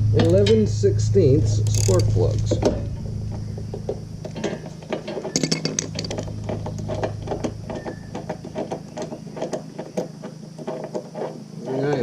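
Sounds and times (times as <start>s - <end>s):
steady low hum: 0.0s - 12.0s
metal tools clinking: 1.4s - 9.5s.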